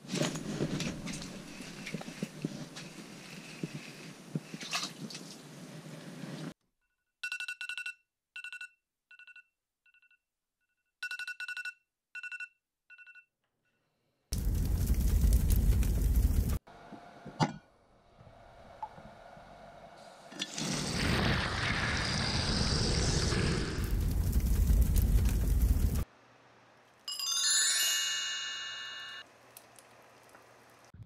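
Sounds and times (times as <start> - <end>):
rustling and knocks of gear: 0.0 - 4.6
phone alarm beeps: 11.0 - 13.3.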